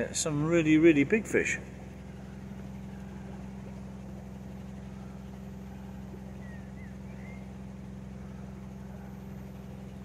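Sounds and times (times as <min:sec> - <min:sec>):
boat engine hum: 0:00.0 - 0:10.0
faint bird chirps: 0:02.1 - 0:10.0.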